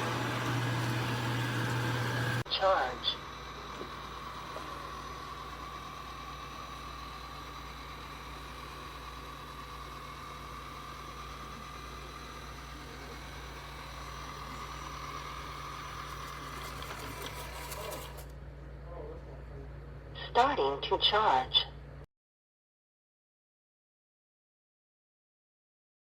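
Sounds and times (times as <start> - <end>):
robot vacuum motor whine: 0.0 - 2.5, 3.2 - 18.3.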